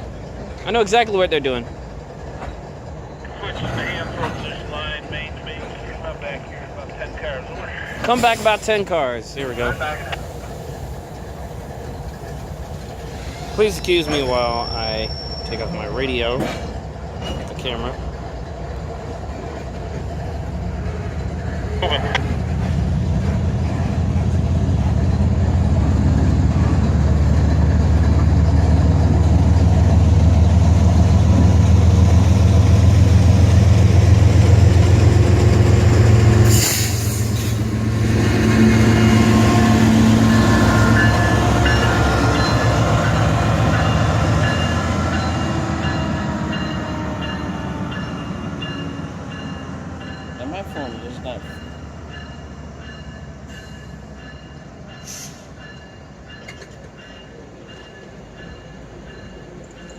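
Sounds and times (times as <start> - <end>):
diesel locomotive rumble: 0.0 - 59.9
thin high squealing tones: 13.2 - 16.1.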